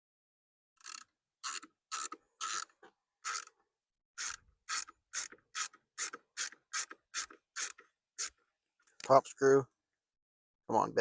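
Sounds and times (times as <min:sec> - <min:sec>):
ratcheting screwdriver clicks: 0:00.8 - 0:02.7.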